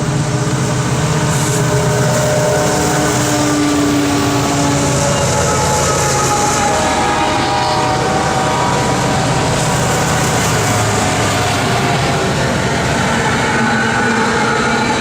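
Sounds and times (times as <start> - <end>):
train cars rumbling on rails: 0.0 - 15.0.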